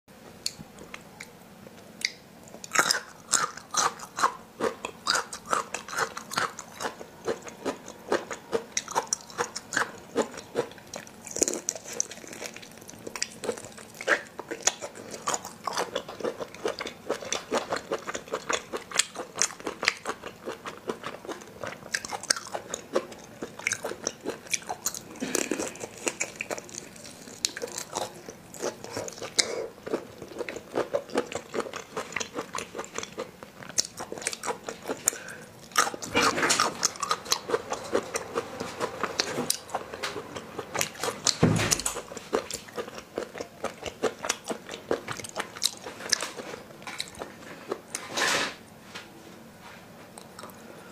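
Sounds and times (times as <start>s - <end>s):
wet chewing sounds: 0.4s - 48.0s
low thump: 41.4s - 41.8s.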